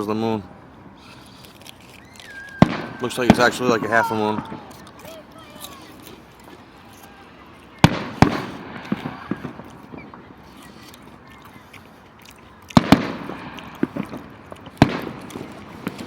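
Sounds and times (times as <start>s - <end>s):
small fireworks pops: 1.0s - 16.0s
fireworks shells bursting: 1.7s - 11.2s, 12.7s - 16.0s.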